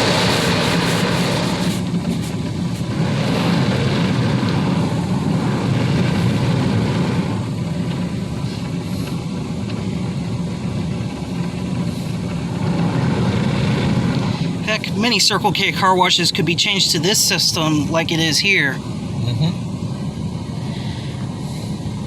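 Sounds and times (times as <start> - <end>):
spinning wash brushes: 0.0 - 2.5
water spray: 0.0 - 3.7
low machine hum: 0.0 - 22.0.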